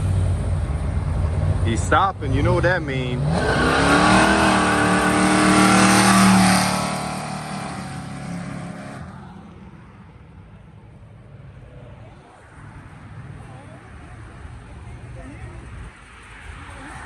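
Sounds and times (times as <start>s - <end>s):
car engine revving away: 1.8s - 9.2s.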